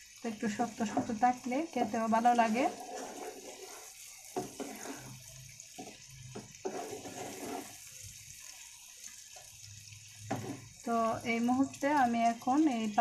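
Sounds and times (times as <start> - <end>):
food sizzling in oil: 0.0 - 13.0
spatula scraping a pan: 0.8 - 8.6, 10.2 - 10.8.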